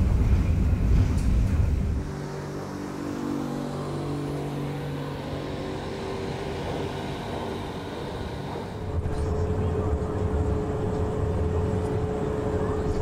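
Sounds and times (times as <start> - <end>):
train carriages rumbling: 0.0 - 2.2
train low hum: 0.0 - 13.0.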